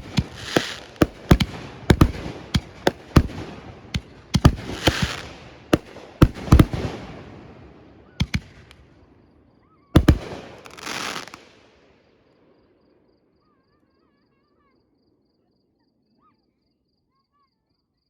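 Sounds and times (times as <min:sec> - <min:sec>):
firework crackling: 0:00.0 - 0:07.4, 0:08.2 - 0:08.8, 0:10.0 - 0:11.6
firework shells bursting: 0:00.0 - 0:07.5, 0:08.2 - 0:08.9, 0:10.0 - 0:11.6.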